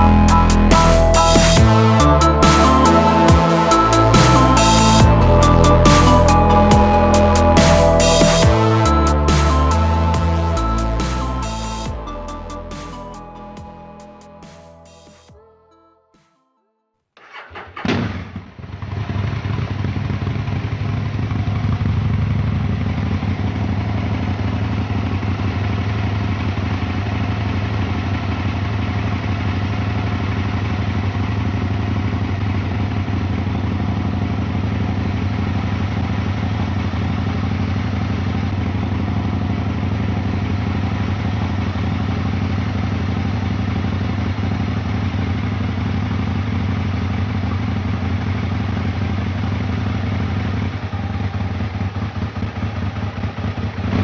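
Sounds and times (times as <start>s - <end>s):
motorcycle engine idling: 17.2s - 54.0s.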